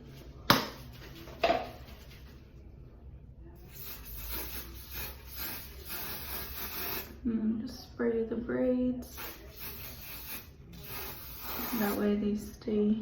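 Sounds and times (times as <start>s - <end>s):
hairspray hissing: 3.7s - 7.2s, 9.1s - 12.0s.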